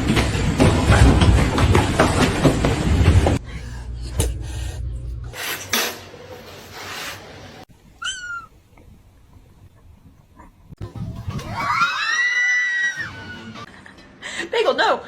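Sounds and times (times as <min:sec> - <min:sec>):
cat meowing: 0:08.0 - 0:08.5.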